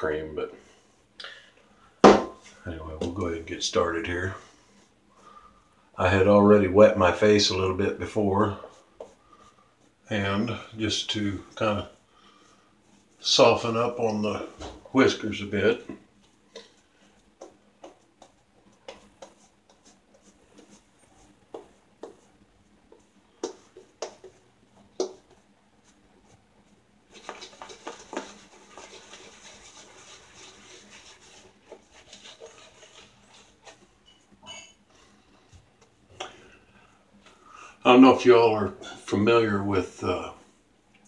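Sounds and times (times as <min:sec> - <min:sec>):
shaving brush lathering soap: 0:15.0 - 0:24.4, 0:27.1 - 0:34.0
light taps and knocks: 0:22.9 - 0:25.4.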